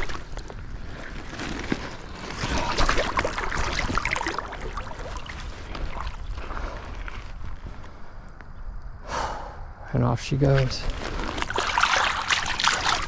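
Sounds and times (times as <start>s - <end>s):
water splashing and sloshing: 0.0s - 7.8s, 10.4s - 13.0s.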